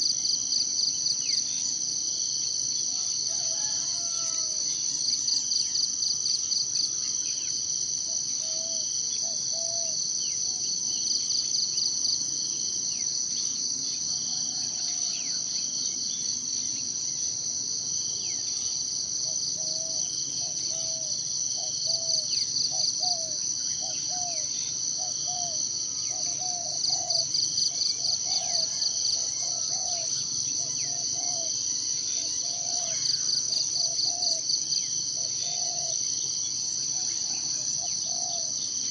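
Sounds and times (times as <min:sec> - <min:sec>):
insect chorus shrill trill: 0:00.0 - 0:38.9.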